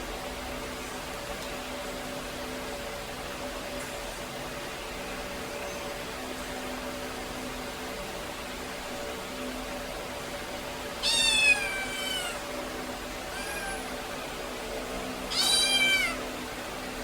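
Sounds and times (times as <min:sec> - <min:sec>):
kitten meowing: 0:11.0 - 0:12.5, 0:13.3 - 0:14.1, 0:15.3 - 0:16.3.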